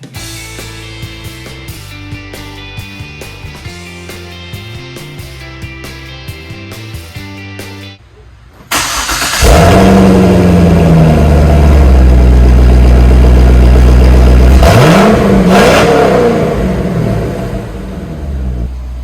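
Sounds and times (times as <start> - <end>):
car engine starting and idling: 8.0 - 19.0.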